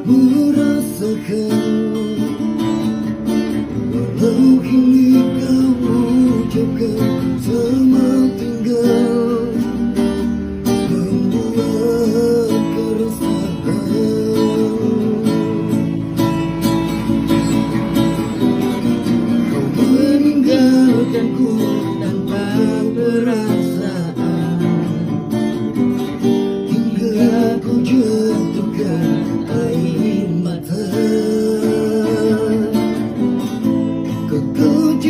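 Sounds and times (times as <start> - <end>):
man singing a pop ballad: 0.0 - 2.5, 3.9 - 9.8, 10.6 - 15.8, 19.6 - 25.1, 26.6 - 33.3, 34.0 - 35.0
strummed acoustic guitar: 0.0 - 35.0.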